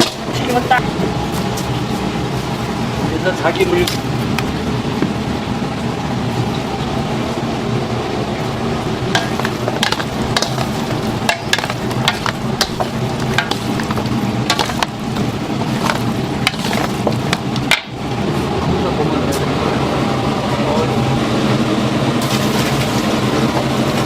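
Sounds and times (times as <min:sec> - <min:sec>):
chicken deep-frying in oil: 0:05.3 - 0:17.8, 0:22.2 - 0:24.0.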